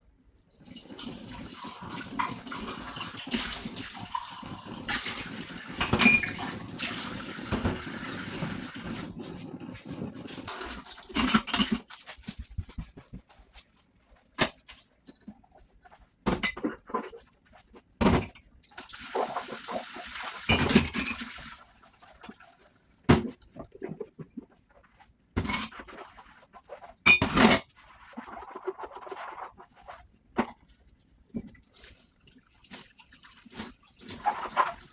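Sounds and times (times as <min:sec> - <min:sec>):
tap water running into sink: 0:00.6 - 0:09.2, 0:18.8 - 0:21.7, 0:31.6 - 0:34.9
dishes clinking and knocking: 0:05.8 - 0:06.4.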